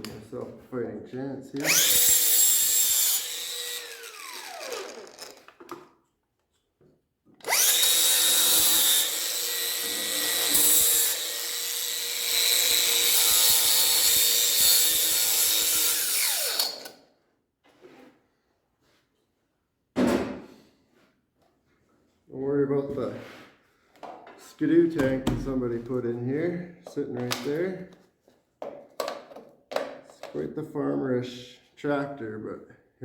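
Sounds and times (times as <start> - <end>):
angle grinder grinding metal: 1.6 - 5.6, 7.4 - 17.0.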